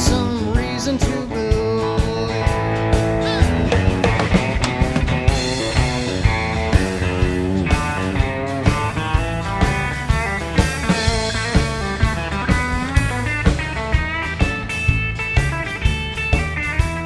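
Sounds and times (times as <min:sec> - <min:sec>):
bass guitar: 0:02.2 - 0:17.0
drum kit steady beat: 0:03.5 - 0:06.0.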